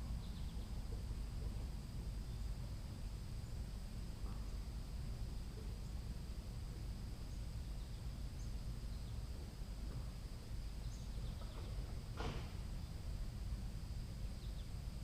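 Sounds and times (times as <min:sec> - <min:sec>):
high-pitched insect hum: 0:00.0 - 0:15.0
faint bird chirps: 0:10.6 - 0:11.9.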